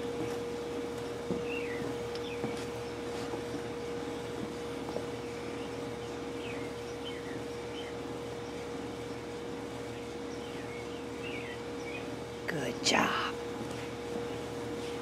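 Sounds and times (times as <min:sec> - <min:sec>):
steady background hum: 0:00.0 - 0:15.0
small birds chirping: 0:01.4 - 0:13.4.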